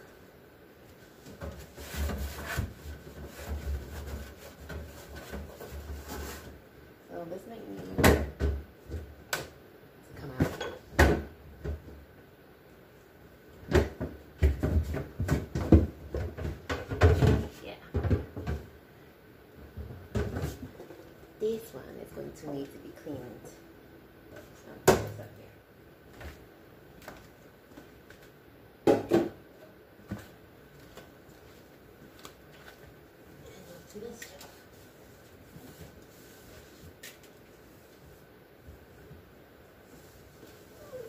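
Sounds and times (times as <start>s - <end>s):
refrigerator drawer knocking and rattling: 13.7s - 18.7s.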